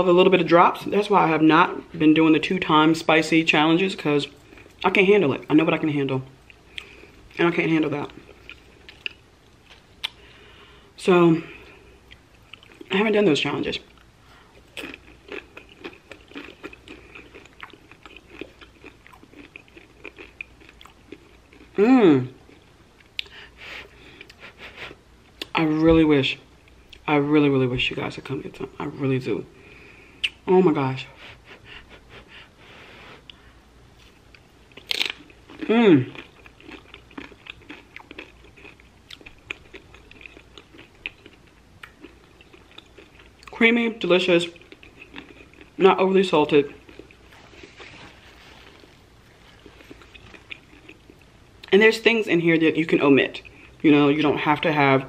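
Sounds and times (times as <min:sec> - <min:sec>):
crunching tortilla chips: 0:14.6 - 0:21.8, 0:34.0 - 0:43.6, 0:46.6 - 0:51.2.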